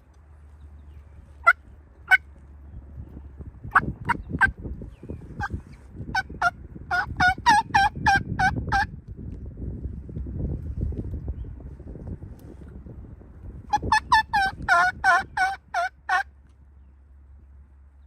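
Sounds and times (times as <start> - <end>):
turkey mouth call yelps: 6.1 - 8.9, 13.7 - 16.2.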